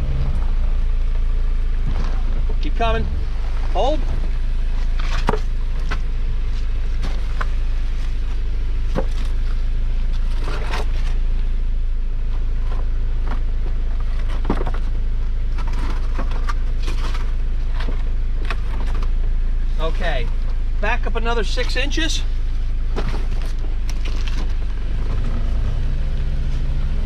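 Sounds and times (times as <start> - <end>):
vehicle engine idling: 0.0 - 27.0
scrapes and knocks from rocks: 4.8 - 8.3, 8.9 - 11.2, 12.6 - 19.2, 22.9 - 25.7.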